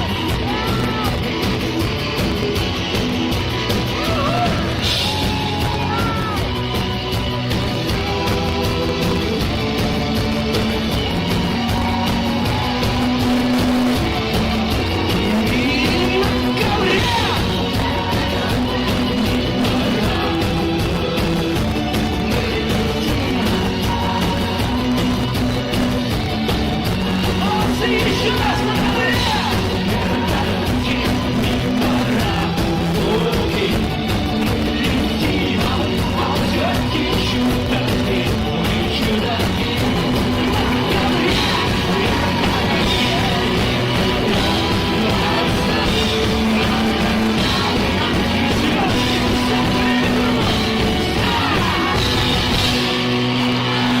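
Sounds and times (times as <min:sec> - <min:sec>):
voices shouting or singing: 0:00.0 - 0:01.9, 0:03.5 - 0:07.1, 0:38.9 - 0:54.0
live rock band playing: 0:00.0 - 0:54.0
voices singing and shouting: 0:00.0 - 0:54.0.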